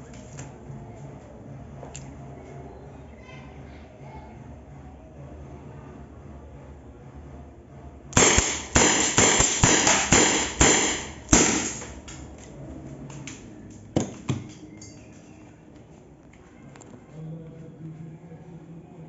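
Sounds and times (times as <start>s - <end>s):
air pistol shots: 8.2s - 12.2s.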